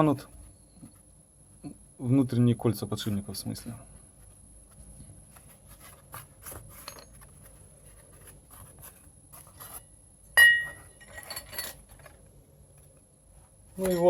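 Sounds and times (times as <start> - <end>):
sharp metallic clink: 10.4 - 11.8
rattle of small clinks: 10.5 - 12.1.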